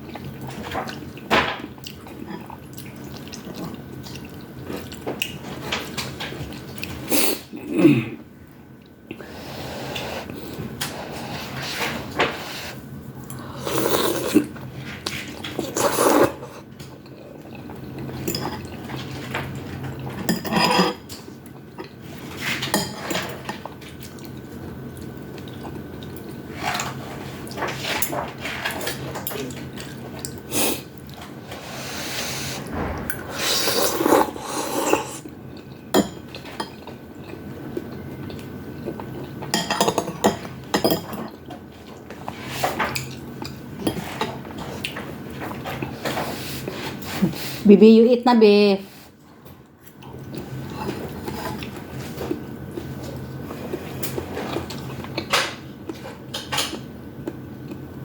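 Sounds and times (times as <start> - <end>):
slurping and chewing: 1.8 - 7.5, 9.1 - 19.2, 33.4 - 47.6
utensils clinking against bowl: 18.2 - 21.2, 39.5 - 41.4.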